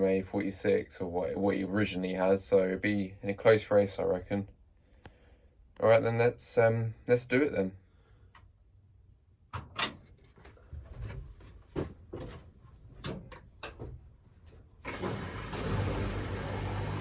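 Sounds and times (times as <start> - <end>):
washing machine humming: 14.8 - 17.0.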